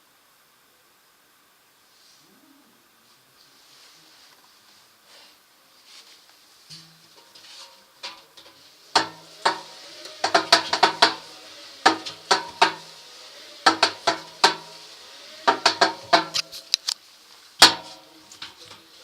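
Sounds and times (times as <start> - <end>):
washing machine drum clacking: 6.7 - 16.7, 17.6 - 19.0.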